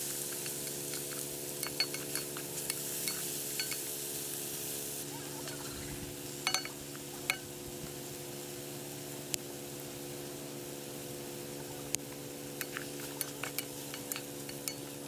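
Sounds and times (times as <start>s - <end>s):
pot food sizzling: 0.0s - 15.0s
steady low hum: 5.0s - 15.0s.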